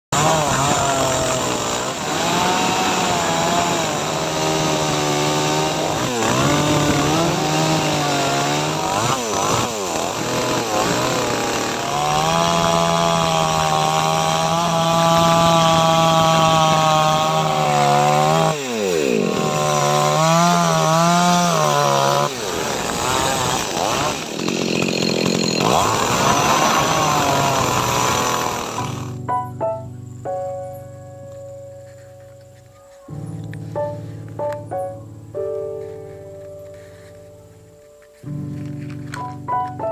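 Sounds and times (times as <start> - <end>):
chainsaw cutting wood: 0.1 - 29.3.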